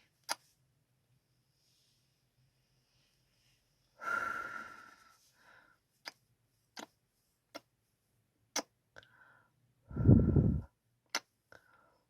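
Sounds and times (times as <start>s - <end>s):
soft breaths: 1.4s - 7.4s, 9.0s - 10.8s, 11.5s - 12.0s.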